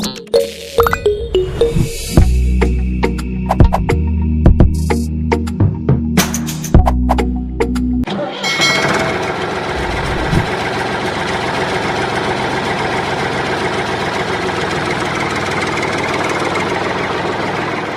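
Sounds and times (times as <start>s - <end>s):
engine idling: 8.8s - 17.9s.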